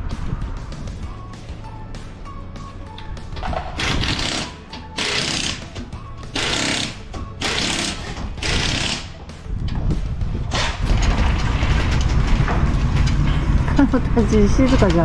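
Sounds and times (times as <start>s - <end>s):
impact wrench rattling: 3.4s - 9.1s
low steady rumble: 9.4s - 15.0s.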